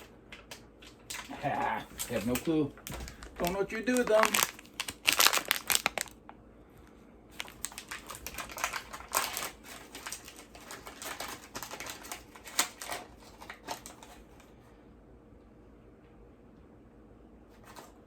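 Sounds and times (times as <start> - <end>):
plastic packaging rustling: 0.0 - 6.3, 7.3 - 14.5.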